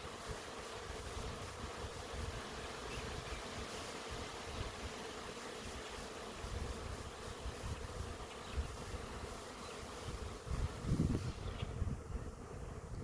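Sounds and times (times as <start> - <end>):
bees buzzing: 0.0 - 13.0
wind rumble on microphone: 10.1 - 13.0.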